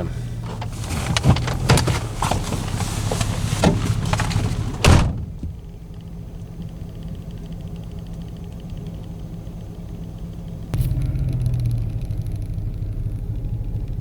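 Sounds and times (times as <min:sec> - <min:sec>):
vehicle door clicks and knocks: 0:00.4 - 0:05.9
door shutting thud: 0:00.5 - 0:05.7.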